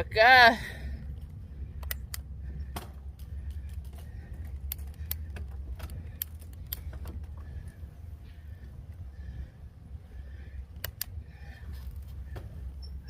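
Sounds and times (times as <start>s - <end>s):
sharp clicks and rattles: 1.2s - 7.7s, 10.7s - 11.2s.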